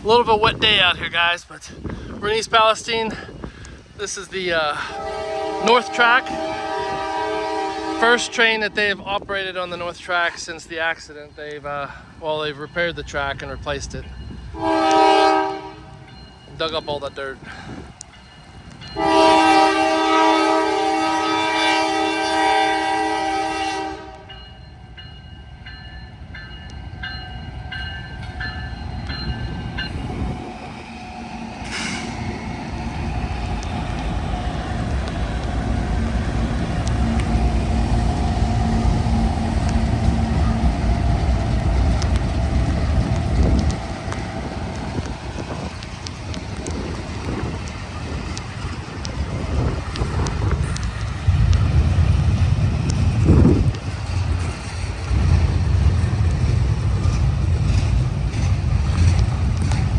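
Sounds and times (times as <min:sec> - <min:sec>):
train rumbling past on track: 0:00.0 - 0:59.9
locomotive air horn blast: 0:04.8 - 0:08.6, 0:14.6 - 0:16.0, 0:19.0 - 0:24.3.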